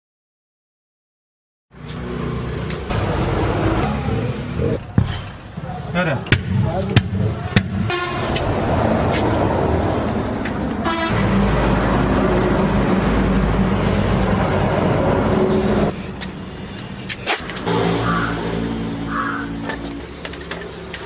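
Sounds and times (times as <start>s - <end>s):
engine running: 1.8s - 5.0s.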